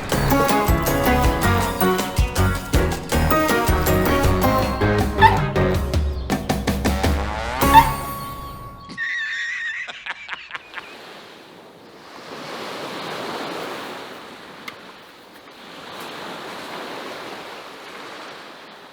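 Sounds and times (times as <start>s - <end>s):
short warbling whistle: 7.2s - 9.0s
waves washing in: 10.7s - 18.9s.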